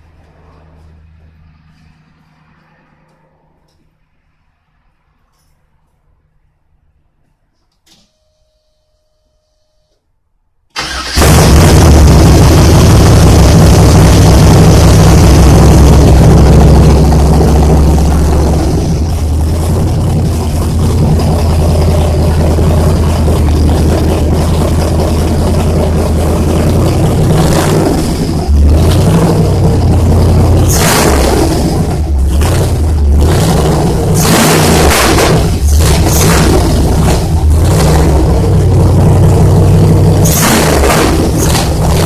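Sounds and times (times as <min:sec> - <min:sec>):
car engine idling and revving: 0:10.8 - 0:42.0.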